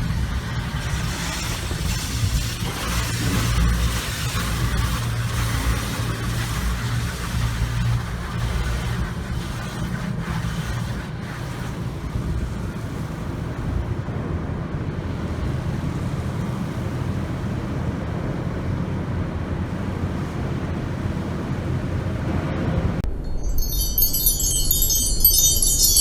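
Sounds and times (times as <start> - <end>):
water spray rushing: 0.0 - 14.0
low rumbling machinery: 0.0 - 26.0.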